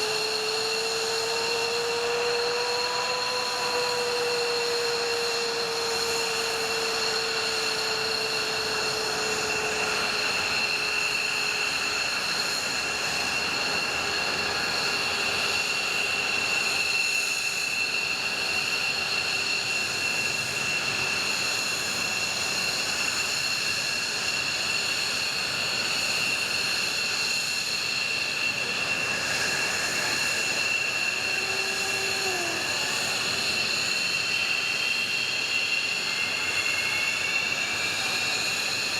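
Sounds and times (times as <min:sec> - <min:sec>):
jet engine whine and rush: 0:00.0 - 0:38.9.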